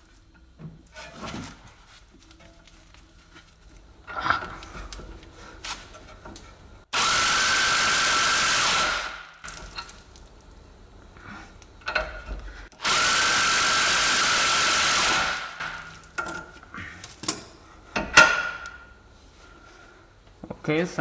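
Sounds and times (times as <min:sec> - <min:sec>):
power tool running: 0:06.9 - 0:09.3, 0:12.8 - 0:15.8.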